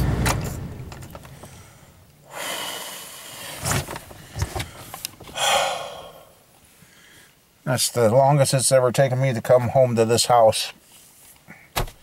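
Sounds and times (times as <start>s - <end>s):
person breathing out heavily: 1.3s - 7.4s.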